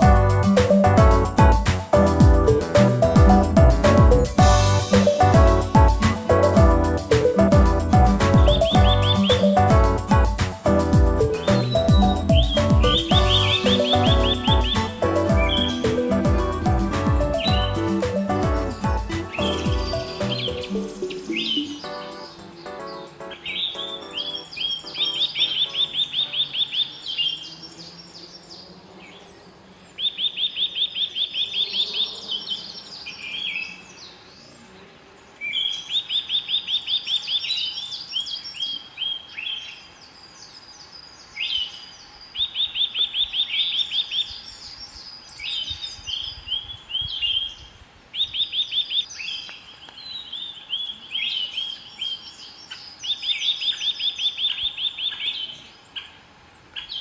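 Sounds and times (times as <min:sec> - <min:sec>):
bird chirps: 0:08.1 - 0:10.6, 0:11.2 - 0:28.5.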